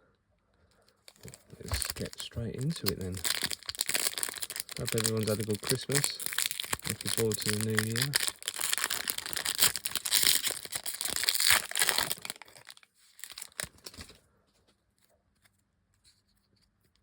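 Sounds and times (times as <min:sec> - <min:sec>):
wrapper tearing and crinkling: 0:01.1 - 0:14.1.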